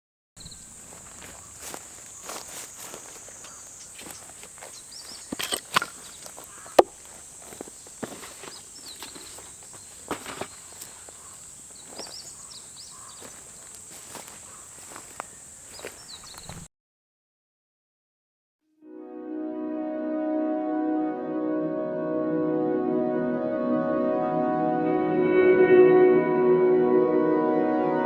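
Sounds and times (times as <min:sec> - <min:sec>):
faint chirps: 0:00.4 - 0:16.7
footsteps outdoors: 0:00.4 - 0:16.7
handling knocks: 0:05.2 - 0:11.0.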